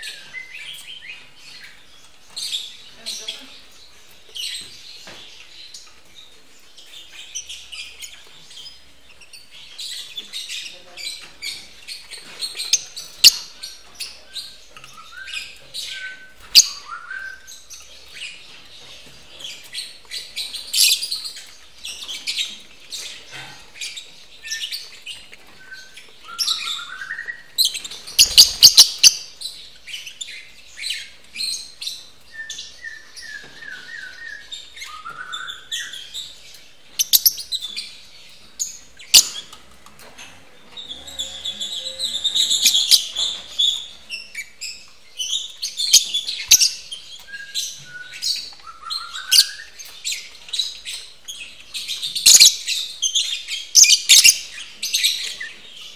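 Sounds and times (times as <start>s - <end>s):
lovebirds chattering: 0.0s - 55.9s.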